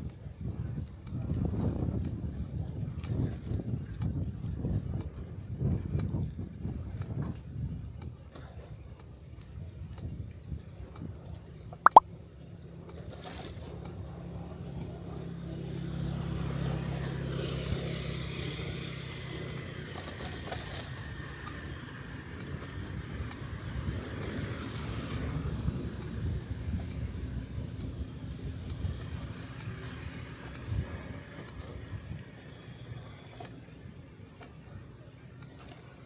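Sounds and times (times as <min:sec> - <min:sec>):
low rumble of road noise: 0:12.3 - 0:36.0.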